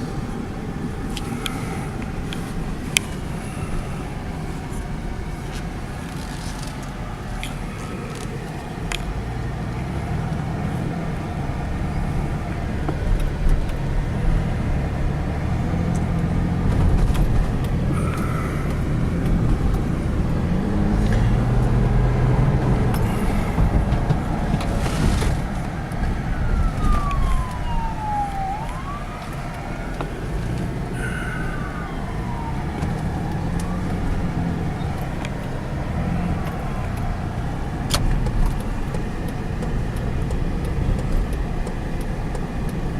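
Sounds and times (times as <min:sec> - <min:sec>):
car driving rumble: 0:00.0 - 0:42.9
siren wailing: 0:25.4 - 0:39.6.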